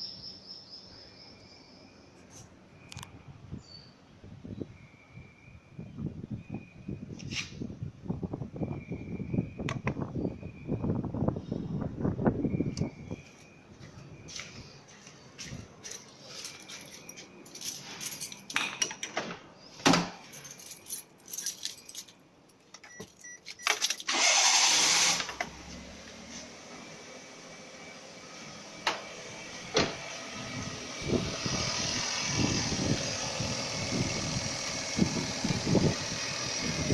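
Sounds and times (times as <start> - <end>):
keys clicking and rattling: 15.6 - 19.2, 20.2 - 24.1
car starter cranking: 23.6 - 25.7.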